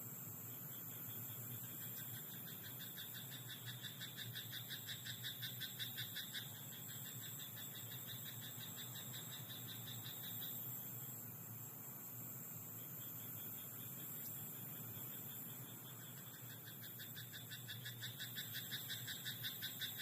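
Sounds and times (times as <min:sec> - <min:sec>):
steady high hiss: 0:00.0 - 0:20.0
frog croaking rapidly: 0:16.1 - 0:20.0.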